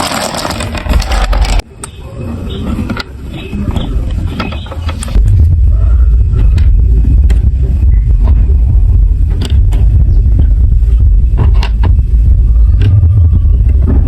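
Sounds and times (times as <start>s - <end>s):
marbles rolling on plastic track: 0.0s - 1.6s.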